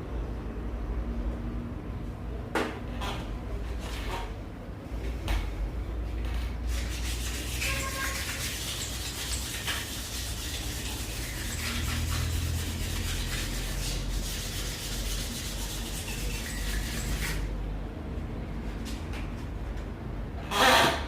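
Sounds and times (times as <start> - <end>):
metal rubbing and scraping: 6.7 - 17.5.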